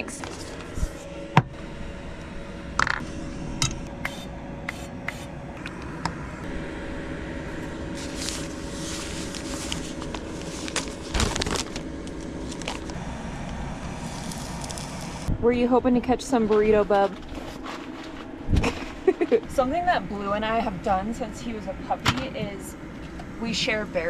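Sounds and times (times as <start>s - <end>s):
low hum: 0.0s - 24.0s
rough scraping and rustling: 8.0s - 13.0s.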